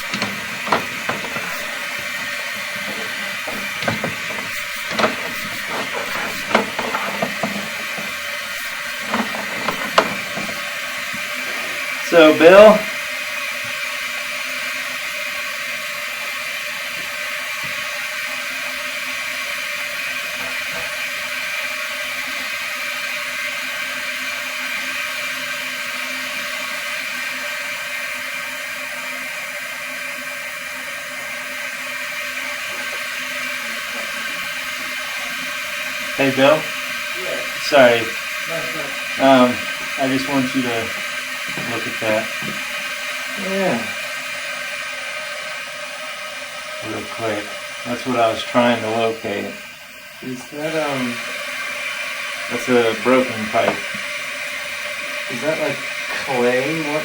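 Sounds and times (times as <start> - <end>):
cable clicking and knocking: 0.0 - 8.2, 8.9 - 10.6
steady hiss: 0.0 - 57.0.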